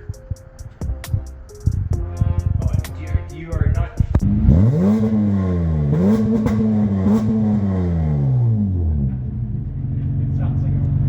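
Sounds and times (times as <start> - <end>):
car engine revving: 2.4 - 11.0.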